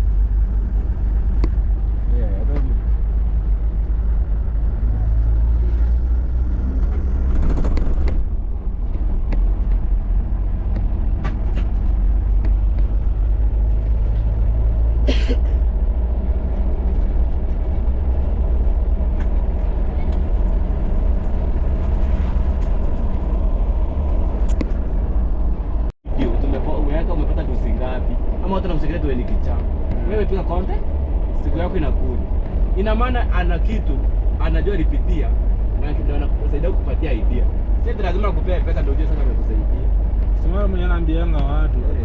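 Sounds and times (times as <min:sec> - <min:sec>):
car engine and road rumble: 0:00.0 - 0:42.0
light knocks and rattles: 0:06.8 - 0:13.0.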